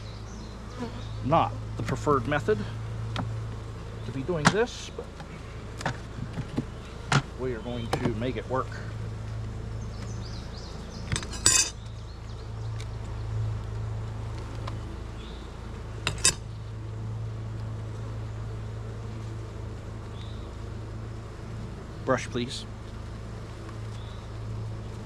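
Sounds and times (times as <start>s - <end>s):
bees buzzing: 0.0s - 25.0s
sharp clinks: 11.1s - 11.8s.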